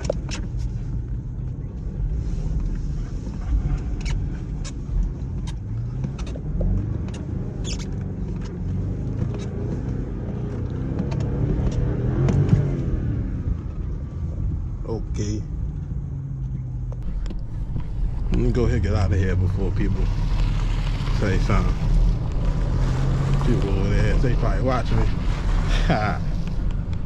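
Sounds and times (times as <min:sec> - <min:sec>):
engine revving: 0:05.7 - 0:13.7, 0:17.0 - 0:27.0.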